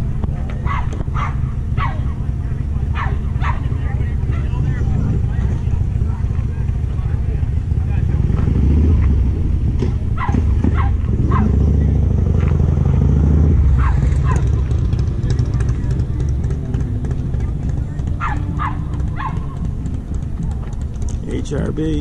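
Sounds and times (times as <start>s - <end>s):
vehicle engine rumbling: 0.0s - 22.0s
dog barking: 0.6s - 2.2s, 2.9s - 4.6s, 10.2s - 11.8s, 13.7s - 14.8s, 18.2s - 19.7s.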